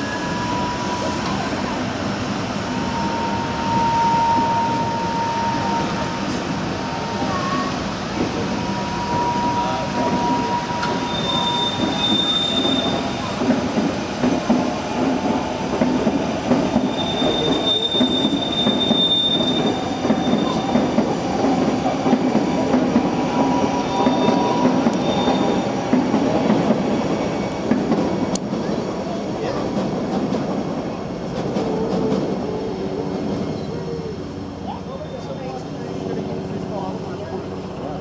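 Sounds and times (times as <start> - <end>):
high thin wheel squeals: 2.7 - 7.8, 8.6 - 13.3, 16.8 - 20.8, 23.4 - 25.7
wheels clattering on rail: 8.1 - 32.6.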